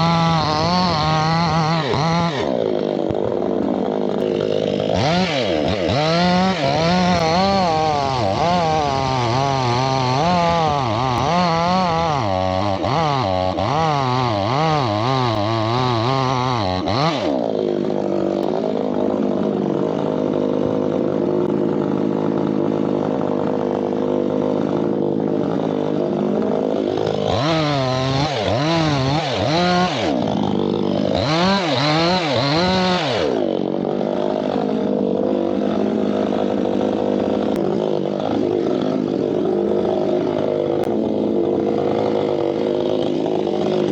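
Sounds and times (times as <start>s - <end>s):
chainsaw revving: 0.0s - 43.9s.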